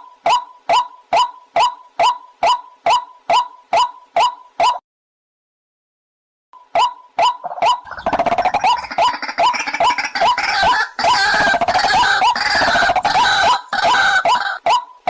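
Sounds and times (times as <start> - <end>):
waterhen calling: 6.8 - 15.0.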